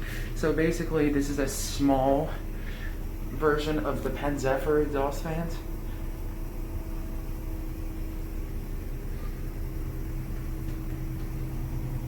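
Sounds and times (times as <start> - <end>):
exhaust fan running: 0.0 - 12.0.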